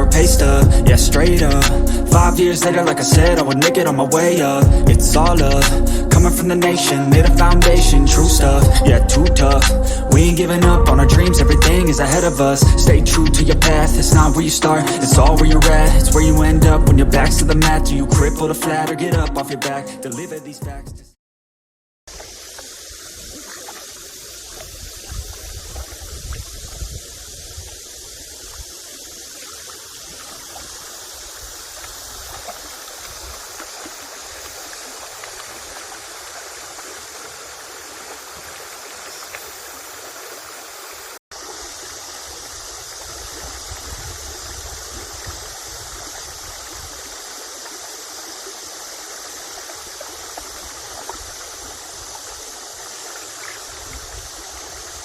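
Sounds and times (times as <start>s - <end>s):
low rumble: 0.0s - 2.2s, 4.8s - 5.6s, 7.2s - 14.4s
stream running: 0.0s - 19.8s, 22.1s - 55.0s.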